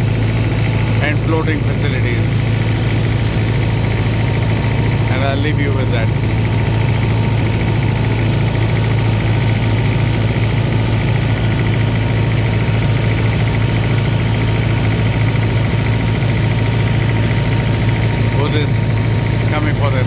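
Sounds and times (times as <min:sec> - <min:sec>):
boat engine humming: 0:00.0 - 0:20.0.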